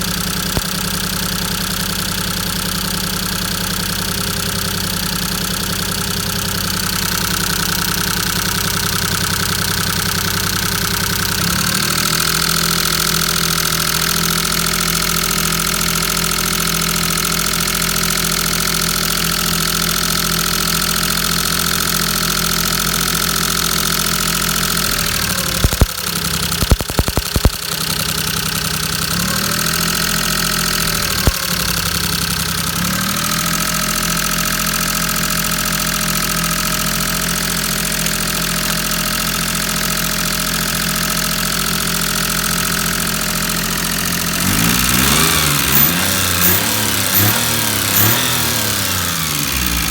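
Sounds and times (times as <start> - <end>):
car engine idling: 0.0 - 49.9
sharp knocks or clicks: 26.6 - 27.6.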